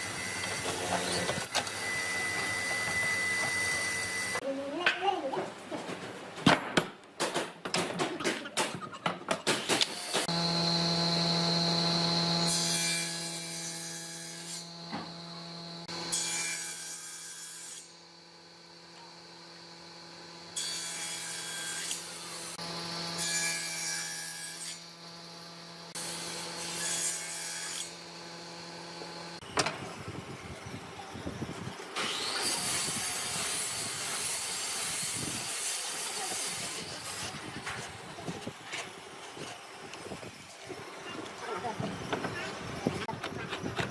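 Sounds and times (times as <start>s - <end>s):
power tool cutting wood: 0.0s - 4.4s, 9.7s - 43.9s.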